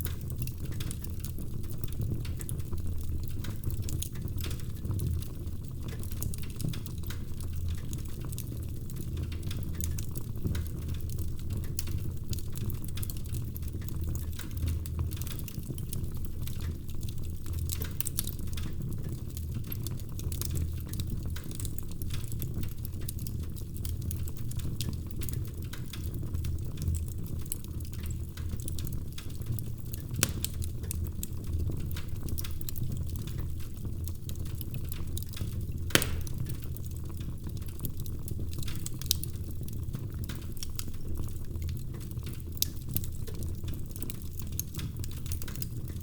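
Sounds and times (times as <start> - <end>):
low rumble of flames: 0.0 - 46.0
wood fire crackling: 0.0 - 46.0
sharp fire pops: 30.2 - 30.7, 35.8 - 36.8.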